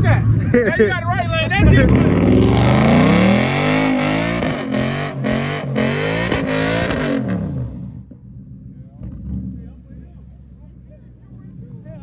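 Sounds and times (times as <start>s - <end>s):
exhaust cracks: 1.4s - 10.2s
car engine revving hard: 1.6s - 7.9s.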